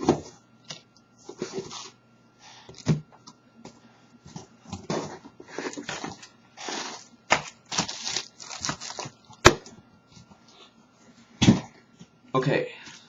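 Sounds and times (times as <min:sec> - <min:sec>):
packaging crinkling and rustling: 0:04.9 - 0:09.6
packaging tearing: 0:05.9 - 0:09.2.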